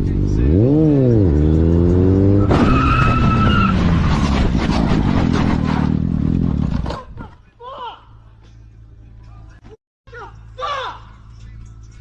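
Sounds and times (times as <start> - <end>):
vehicle engine revving: 0.0 - 6.9
tyre squeal: 2.3 - 4.5
crash: 2.4 - 7.0
clattering and scraping: 2.6 - 7.1.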